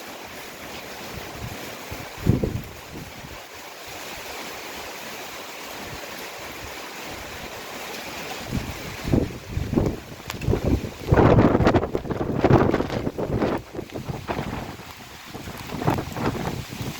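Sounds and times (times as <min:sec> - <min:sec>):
heavy rain downpour: 0:00.0 - 0:16.9
wind gusts on microphone: 0:00.7 - 0:04.9, 0:08.3 - 0:16.9.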